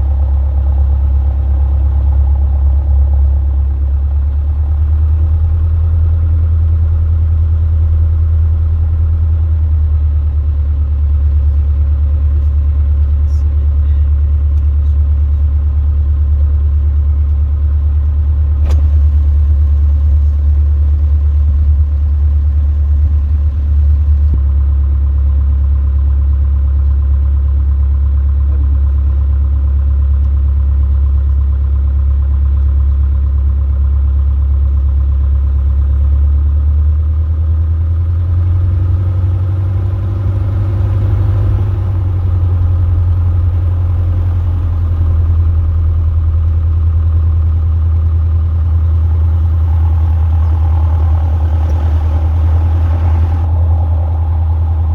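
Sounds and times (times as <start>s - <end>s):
light aircraft engine droning: 0.0s - 7.8s, 16.9s - 24.4s, 37.9s - 54.9s
single sharp click: 18.6s - 19.0s.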